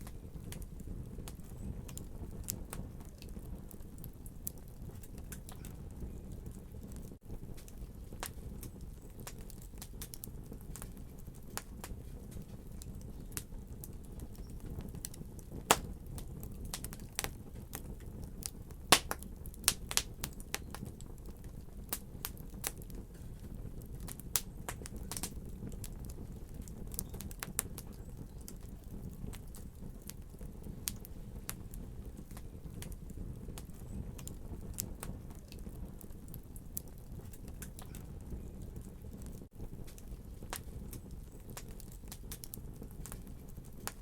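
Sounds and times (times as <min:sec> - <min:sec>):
wood fire crackling: 0:00.0 - 0:44.0.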